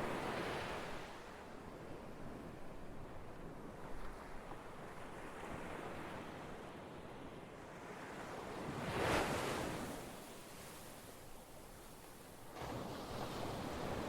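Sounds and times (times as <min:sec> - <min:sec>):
ocean waves washing: 0:12.5 - 0:14.0.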